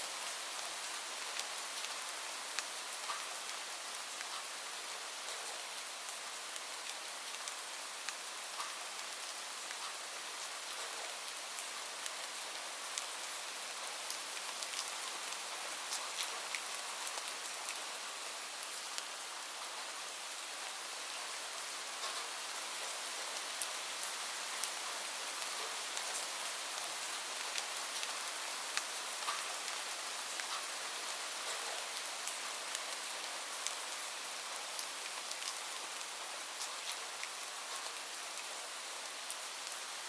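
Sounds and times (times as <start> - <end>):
rain falling: 0.0 - 40.0
raindrops pattering on surface: 0.1 - 40.0.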